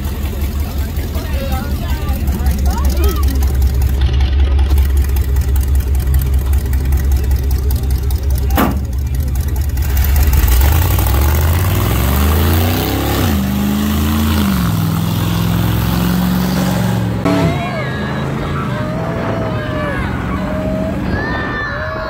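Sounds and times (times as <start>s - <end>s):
truck engine rumbling and revving: 0.0s - 22.0s.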